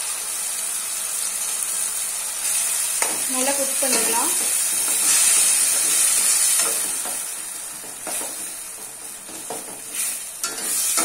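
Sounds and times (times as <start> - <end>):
puree sizzling in hot oil: 0.0 - 11.0
spatula scraping a pan: 3.9 - 7.2, 7.8 - 11.0.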